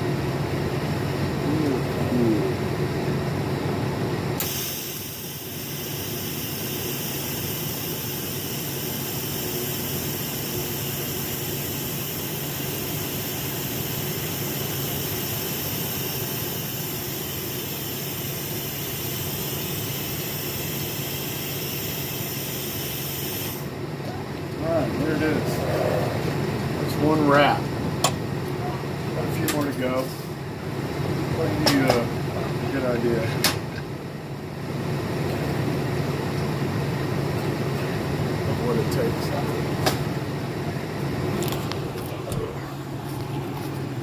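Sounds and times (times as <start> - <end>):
steady low hum: 0.0 - 44.0
welding arc hissing: 4.4 - 23.7.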